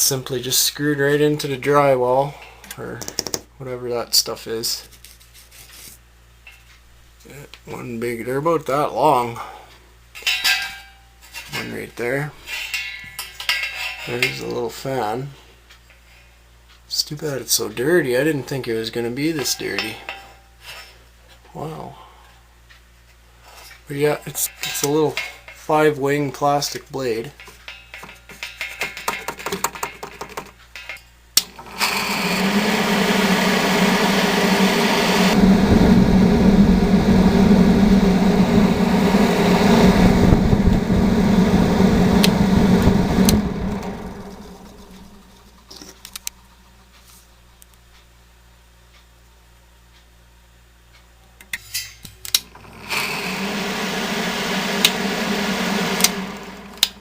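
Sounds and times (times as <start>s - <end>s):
exhaust fan motor hum with rattle: 0.0s - 57.0s
exhaust fan rattling hum: 23.4s - 46.9s, 52.5s - 57.0s.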